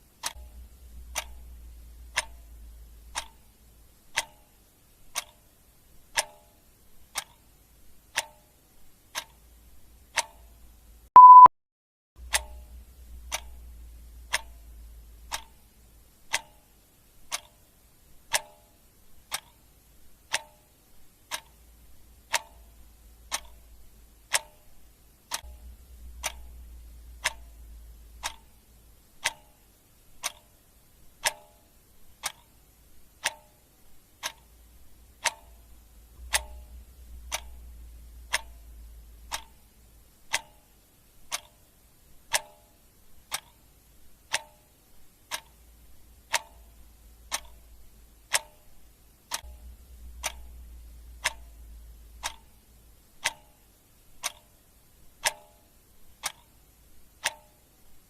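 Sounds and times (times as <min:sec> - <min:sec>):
clock ticking: 0:00.0 - 0:11.5, 0:12.2 - 0:58.0
short high beep: 0:11.2 - 0:11.5.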